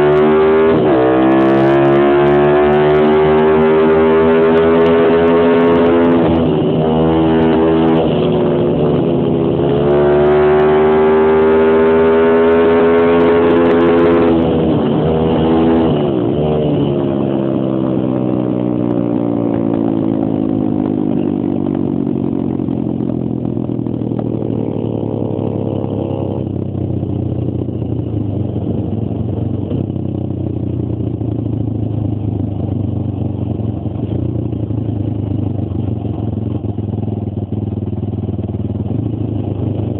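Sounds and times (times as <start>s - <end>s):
motorbike engine revving: 0.0s - 27.9s.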